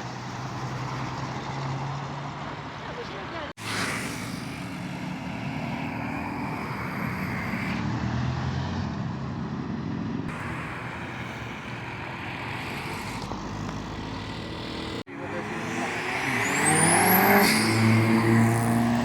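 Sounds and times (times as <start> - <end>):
vehicle engine running: 9.2 - 15.6.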